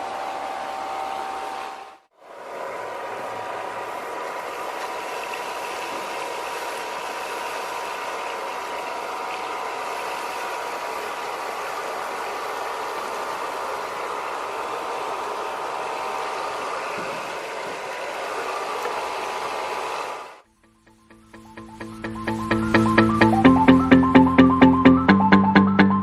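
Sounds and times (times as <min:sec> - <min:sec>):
vacuum cleaner motor whining: 0:00.0 - 0:20.4.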